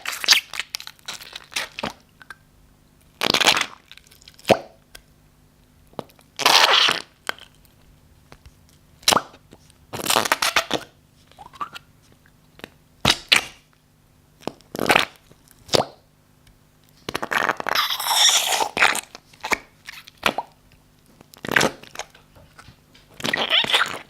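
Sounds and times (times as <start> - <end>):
slime squelching: 21.2 - 24.0.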